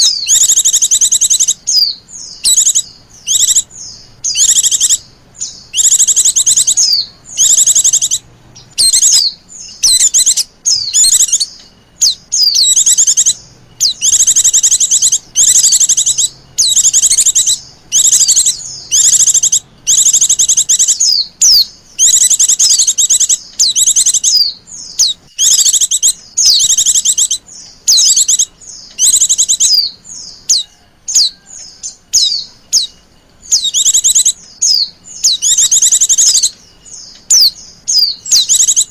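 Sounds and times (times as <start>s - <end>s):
bird twittering: 0.0s - 38.9s.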